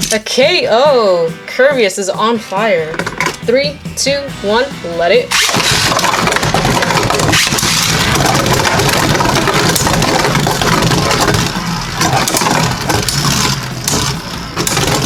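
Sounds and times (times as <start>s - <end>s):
spinning tops whirring: 2.6s - 15.0s
spinning tops clacking and scraping: 5.2s - 15.0s.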